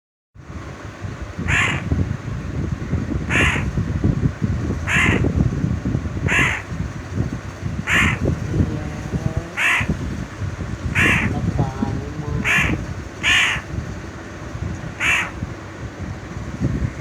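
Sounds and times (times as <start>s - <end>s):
crow cawing: 1.5s - 1.9s, 3.3s - 3.7s, 4.9s - 5.3s, 6.3s - 6.7s, 7.9s - 8.3s, 9.6s - 10.0s, 11.0s - 11.3s, 12.4s - 13.7s, 15.0s - 15.4s.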